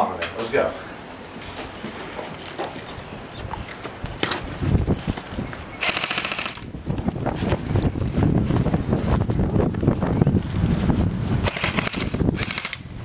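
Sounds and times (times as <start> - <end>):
airsoft gun full-auto burst: 5.8 - 6.6, 11.4 - 12.8.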